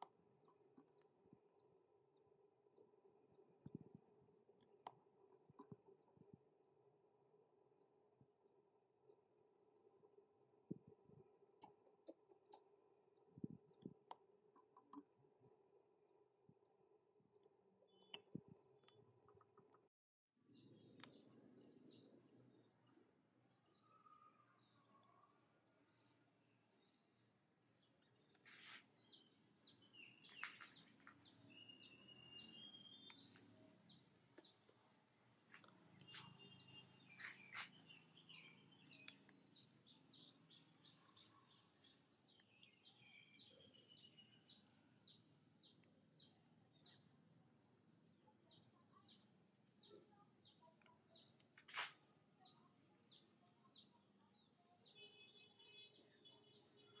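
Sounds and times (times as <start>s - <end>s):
small bird chirping: 23.4s - 34.9s, 35.6s - 57.0s.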